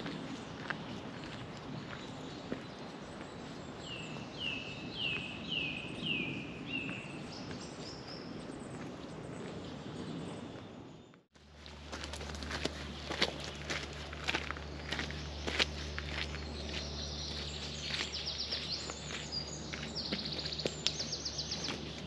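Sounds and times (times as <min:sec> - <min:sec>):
footsteps on a trail: 0:00.0 - 0:04.4, 0:11.4 - 0:22.0.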